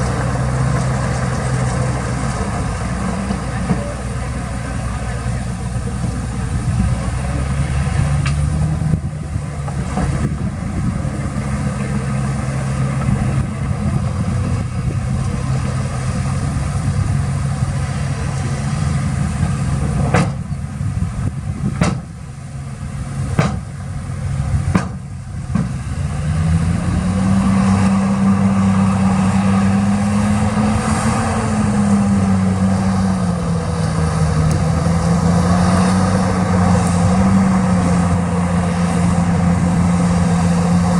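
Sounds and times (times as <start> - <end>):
heavy diesel engine revving: 0.0 - 40.9
sharp knocks: 21.8 - 22.1, 23.4 - 23.7, 24.7 - 25.8.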